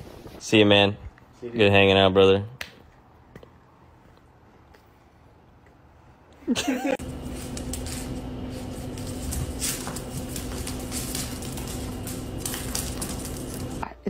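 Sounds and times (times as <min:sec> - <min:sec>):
steady mechanical hum: 0:00.1 - 0:14.0
puppy claws tapping on floor: 0:07.1 - 0:13.8.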